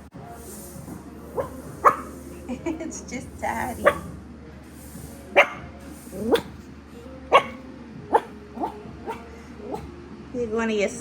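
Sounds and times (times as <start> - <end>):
puppy barking: 1.2 - 2.4, 3.7 - 4.2, 5.3 - 6.6, 7.3 - 9.9.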